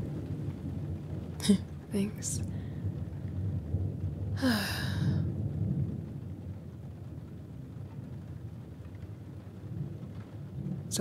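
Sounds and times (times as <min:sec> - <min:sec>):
rain: 0:00.0 - 0:11.0
thunder rumbling: 0:00.0 - 0:11.0
woman sighing: 0:04.4 - 0:05.3.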